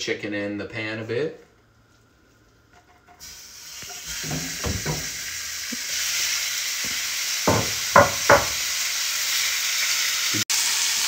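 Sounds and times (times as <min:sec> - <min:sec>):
chicken sizzling in skillet: 0:03.2 - 0:11.0
knocks: 0:04.2 - 0:05.1, 0:07.5 - 0:08.6.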